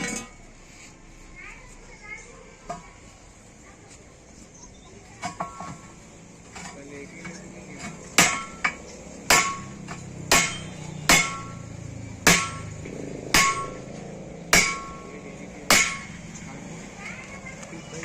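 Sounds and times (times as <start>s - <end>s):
hammer striking metal: 7.8s - 16.4s.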